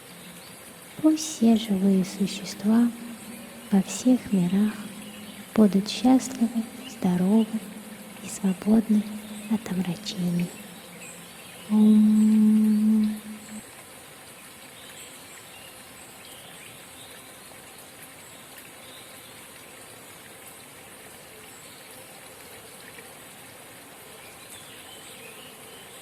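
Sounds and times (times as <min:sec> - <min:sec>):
spring babbling: 0:00.0 - 0:13.7.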